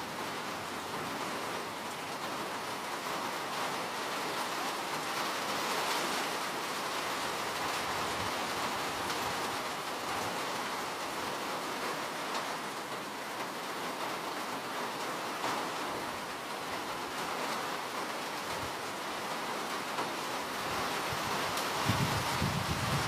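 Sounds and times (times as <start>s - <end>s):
steady rain hiss: 0.0s - 23.0s.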